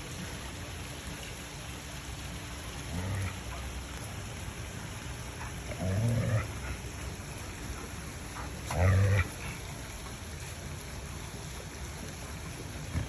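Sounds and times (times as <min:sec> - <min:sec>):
dog growling: 0:02.8 - 0:03.8, 0:05.3 - 0:09.8.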